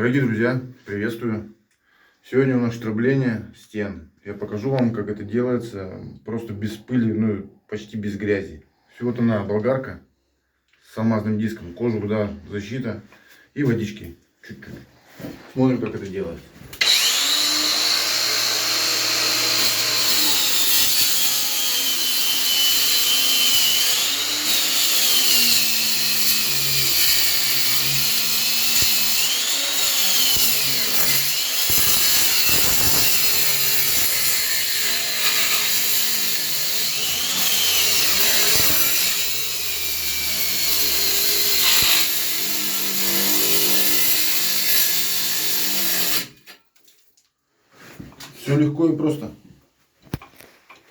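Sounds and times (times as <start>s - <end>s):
angle grinder cutting wall: 16.8s - 46.5s.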